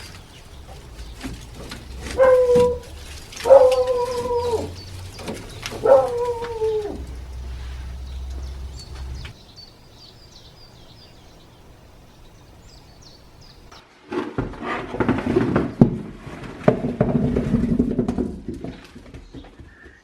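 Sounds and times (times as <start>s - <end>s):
small birds chirping: 0.0s - 13.8s
rustling and clattering: 0.0s - 20.0s.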